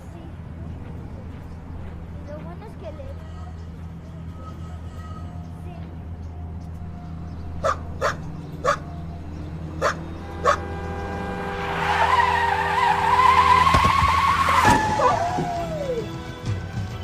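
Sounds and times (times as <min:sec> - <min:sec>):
car tyres screeching: 0:00.0 - 0:16.4
dog barking: 0:07.6 - 0:09.0, 0:09.8 - 0:10.7.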